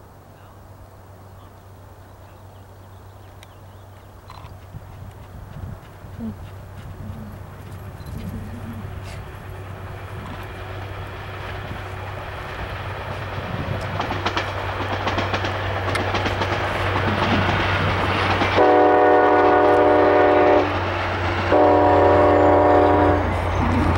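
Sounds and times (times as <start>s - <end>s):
train wheels clattering on rails: 4.0s - 23.9s
low hum: 4.3s - 13.9s
train horn blasts: 18.5s - 20.9s, 21.5s - 23.9s.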